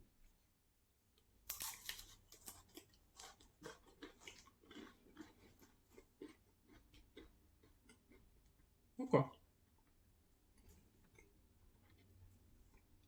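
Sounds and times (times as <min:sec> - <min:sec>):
person chewing crunchy cracker: 0:01.5 - 0:08.7, 0:10.6 - 0:13.0.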